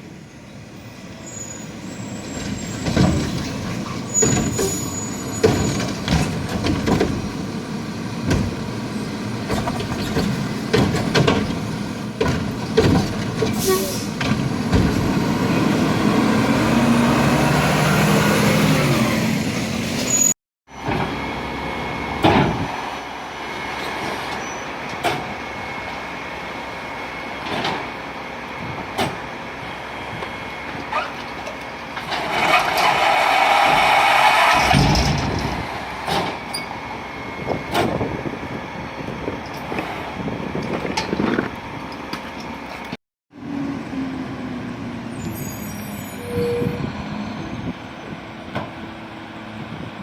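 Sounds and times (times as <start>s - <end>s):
garbage truck engine revving: 2.0s - 20.1s, 32.0s - 36.5s
clanks and knocks: 5.4s - 7.4s, 8.3s - 8.7s, 9.5s - 13.6s.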